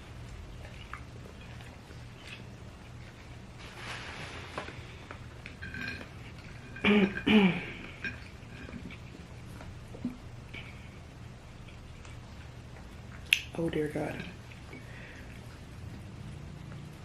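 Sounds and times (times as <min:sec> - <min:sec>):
faint eating clicks: 0:00.0 - 0:03.5, 0:05.1 - 0:17.0
person coughing: 0:06.8 - 0:07.8.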